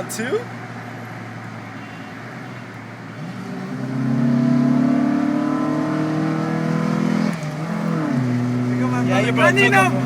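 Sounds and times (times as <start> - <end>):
car engine accelerating hard: 3.1 - 10.0.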